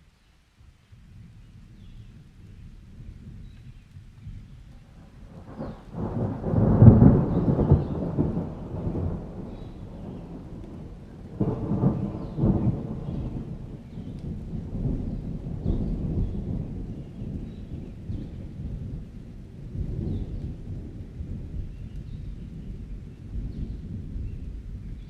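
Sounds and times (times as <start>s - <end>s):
thunder rumbling: 1.1s - 25.0s.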